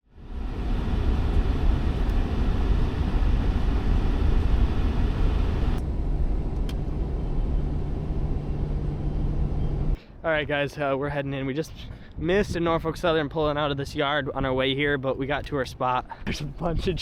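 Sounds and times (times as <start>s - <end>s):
car low rumble: 0.0s - 10.5s.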